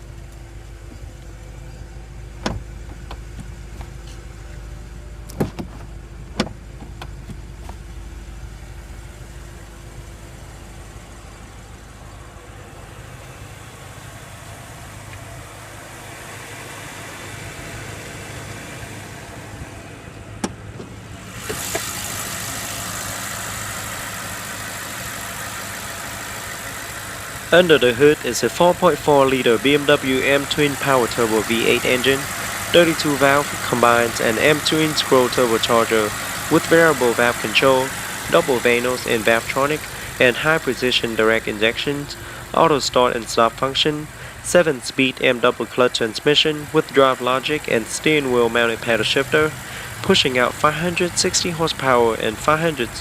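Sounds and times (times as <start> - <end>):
car engine idling: 0.0 - 53.0
sharp clicks and knocks: 2.4 - 4.2, 5.3 - 7.9
strong hiss: 27.5 - 45.2.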